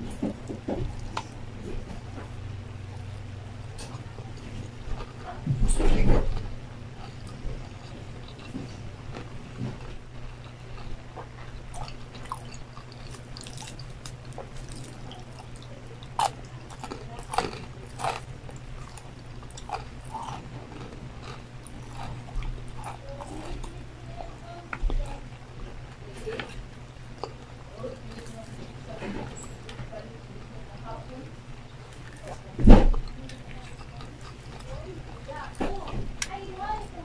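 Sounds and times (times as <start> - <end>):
steady low hum: 0.0 - 37.0
person chewing and crunching food: 6.2 - 29.5, 30.8 - 37.0.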